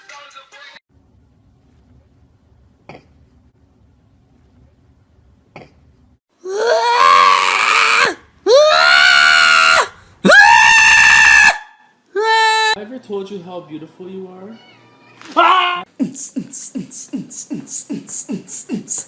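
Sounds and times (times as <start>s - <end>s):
cat yowling: 14.6s - 15.9s.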